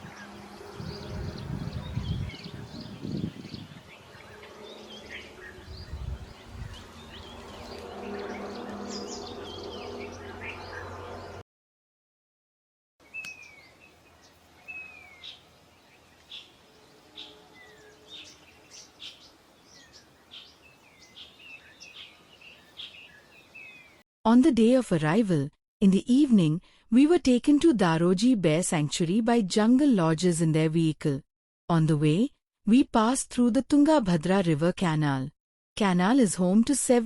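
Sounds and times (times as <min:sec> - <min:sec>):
birds chirping and calling: 0:00.0 - 0:11.4, 0:17.2 - 0:24.0.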